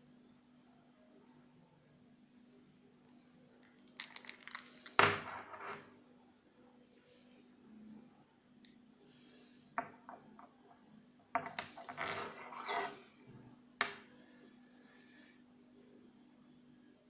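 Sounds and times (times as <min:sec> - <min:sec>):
small hard parts clattering: 0:03.6 - 0:05.9.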